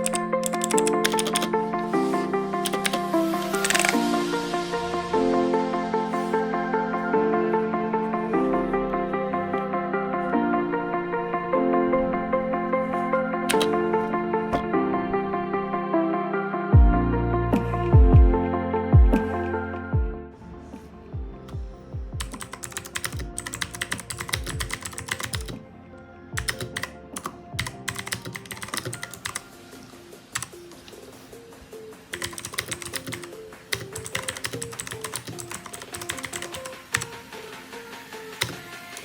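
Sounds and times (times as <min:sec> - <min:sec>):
fast typing on clicky keyboard: 0:00.0 - 0:04.0, 0:13.5 - 0:14.7, 0:22.2 - 0:25.6, 0:26.4 - 0:29.5, 0:30.4 - 0:30.6, 0:32.1 - 0:37.4, 0:38.3 - 0:39.0.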